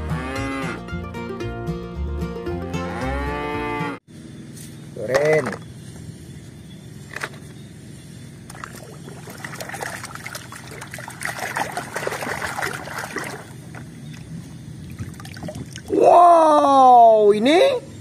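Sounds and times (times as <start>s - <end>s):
water sloshing in a basin: 8.5s - 15.9s.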